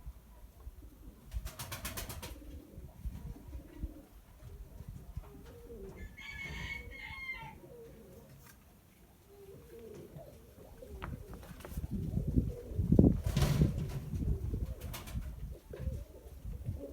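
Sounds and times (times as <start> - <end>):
pigeons cooing: 0.5 - 16.9.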